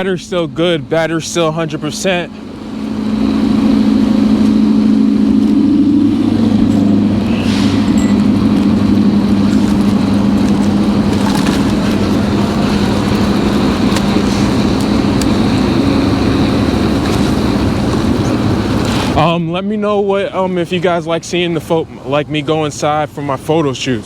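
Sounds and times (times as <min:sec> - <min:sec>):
electric bike hum: 0:00.0 - 0:19.3
rushing noise: 0:01.1 - 0:19.2.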